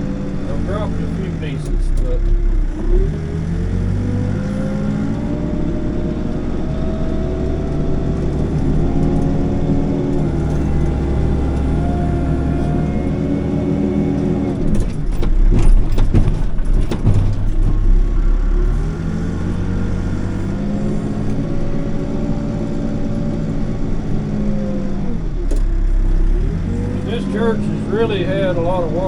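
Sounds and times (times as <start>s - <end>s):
backhoe engine running: 0.0s - 29.0s
loud knocks and rattles: 14.6s - 18.2s.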